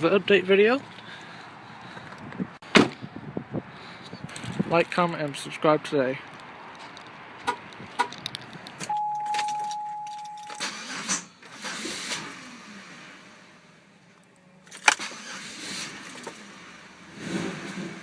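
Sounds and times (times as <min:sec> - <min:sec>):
keys jingling: 0:08.1 - 0:10.8
electronic warning beep: 0:08.9 - 0:10.7.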